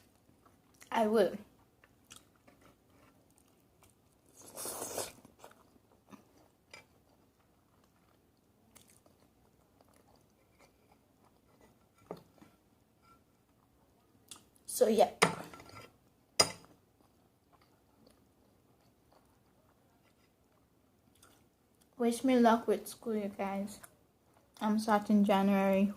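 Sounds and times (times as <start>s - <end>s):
person chewing and biting food: 1.8s - 11.7s.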